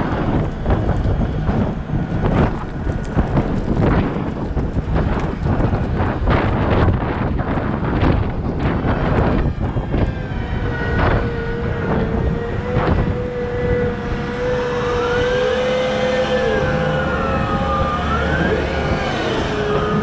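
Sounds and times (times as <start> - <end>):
wheel loader diesel rumble: 0.0 - 20.0
whine rising and falling: 6.1 - 20.0.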